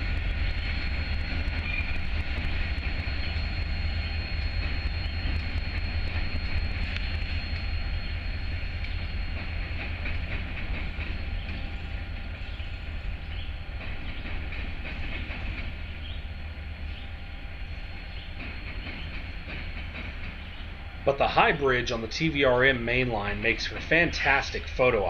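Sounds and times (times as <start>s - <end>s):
train wheel clicks: 0.0s - 17.1s, 18.0s - 20.8s
freight train rumbling: 0.0s - 25.0s.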